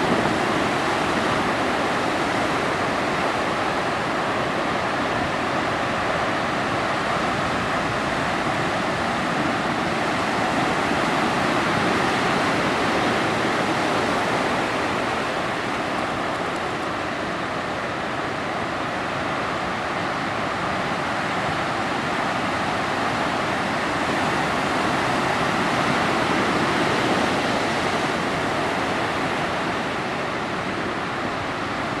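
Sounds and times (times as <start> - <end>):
waves breaking and washing in: 0.0 - 32.0.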